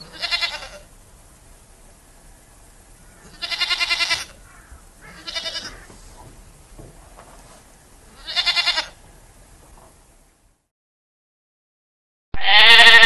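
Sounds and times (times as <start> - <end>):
sheep bleating: 0.0 - 0.8, 3.2 - 4.4, 5.0 - 5.9, 8.2 - 9.0, 12.4 - 13.0.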